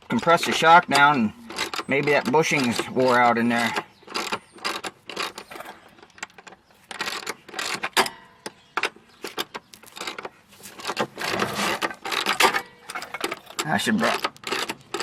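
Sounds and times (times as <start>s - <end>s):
metallic clicks and clanks: 0.0s - 15.0s.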